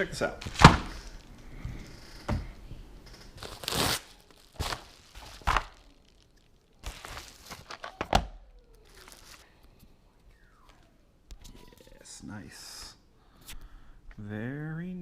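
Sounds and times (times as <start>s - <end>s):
cardboard tearing: 3.3s - 8.2s.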